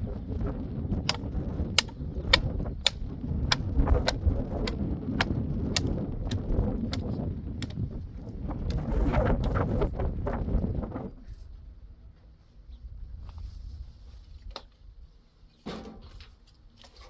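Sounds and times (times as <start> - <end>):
low rumble of wind: 0.0 - 17.0
sharp knocks repeating evenly: 1.8 - 7.8.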